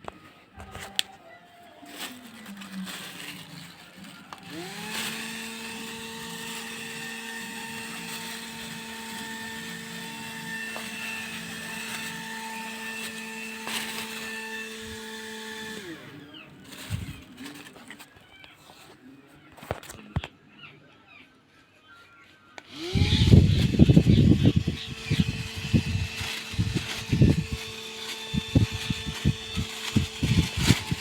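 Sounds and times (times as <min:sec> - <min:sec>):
small fan motor whining: 0:01.9 - 0:18.0, 0:22.6 - 0:31.0.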